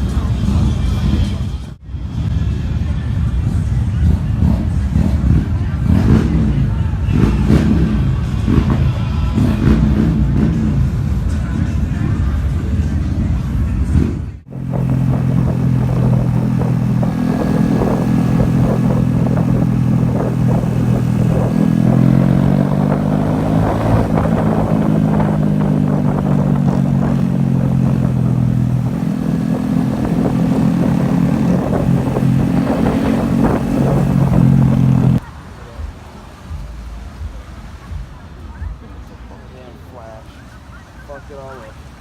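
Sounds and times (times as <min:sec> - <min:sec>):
motorcycle engine running: 0:13.9 - 0:35.3.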